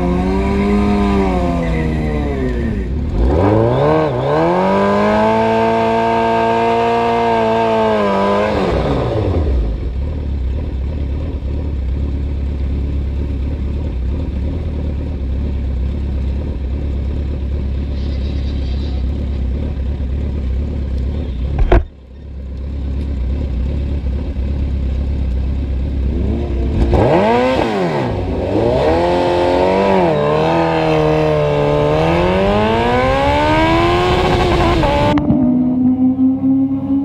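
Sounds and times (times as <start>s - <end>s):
motorcycle engine accelerating: 0.0s - 37.0s
low engine rumble: 9.0s - 37.0s.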